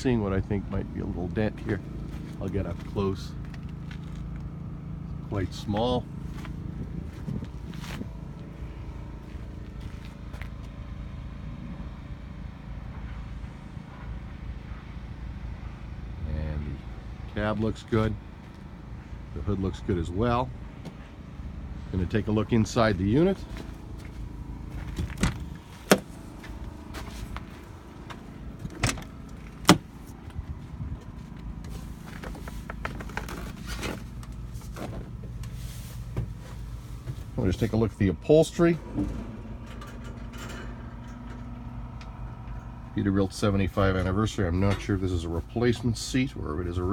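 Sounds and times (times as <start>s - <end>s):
low outdoor rumble: 0.0s - 46.9s
truck door clunks: 23.5s - 30.4s.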